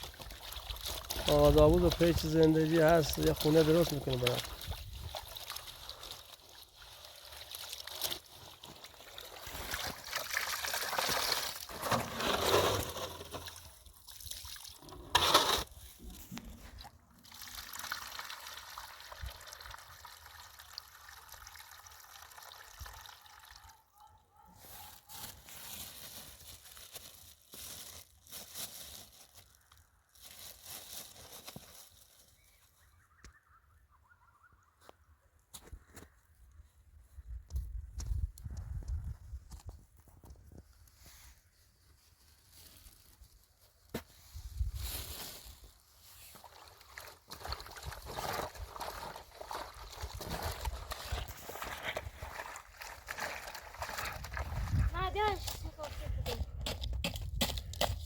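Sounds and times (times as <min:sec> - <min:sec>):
water pouring and sloshing: 0:00.0 - 0:23.8, 0:24.6 - 0:29.5, 0:44.5 - 0:55.6.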